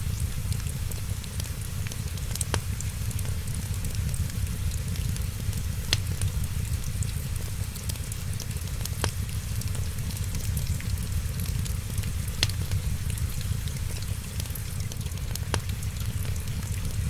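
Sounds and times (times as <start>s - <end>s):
steady low rumble: 0.0s - 17.0s
wood fire crackling and popping: 0.0s - 17.0s.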